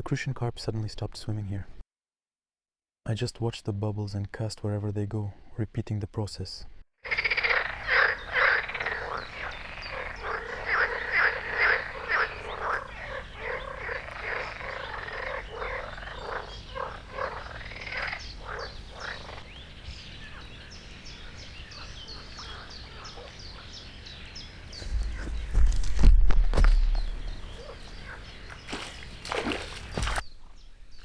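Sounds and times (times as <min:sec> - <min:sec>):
frogs croaking: 0:07.0 - 0:25.3, 0:26.9 - 0:30.2.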